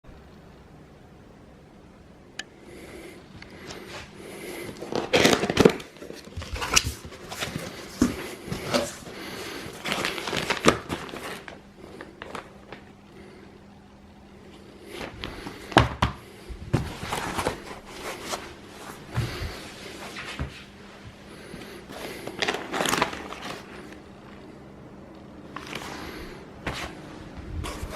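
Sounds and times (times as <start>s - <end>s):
faint steady hum: 0.0s - 27.9s
cardboard box rustling and crinkling: 4.8s - 9.1s, 16.7s - 18.5s, 22.4s - 23.7s.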